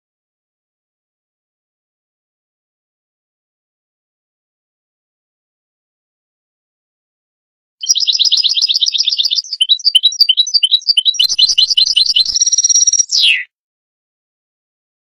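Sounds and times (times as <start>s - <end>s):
goldfinch singing: 7.8s - 13.5s.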